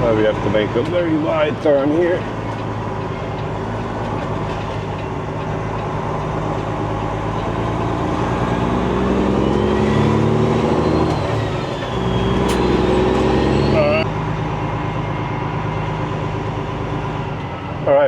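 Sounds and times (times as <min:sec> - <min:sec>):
truck diesel engine pulling: 0:00.0 - 0:18.0
faint rising whistle: 0:09.1 - 0:16.1.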